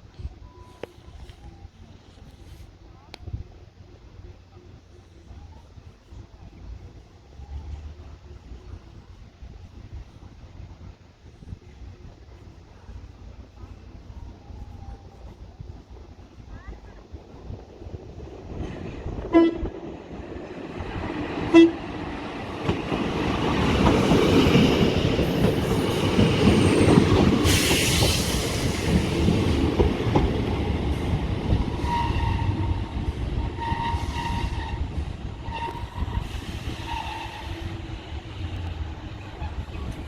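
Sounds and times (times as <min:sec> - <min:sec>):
train rumbling past: 0:00.0 - 0:40.0
train horn toot: 0:19.3 - 0:19.7, 0:21.5 - 0:21.9, 0:33.5 - 0:37.8.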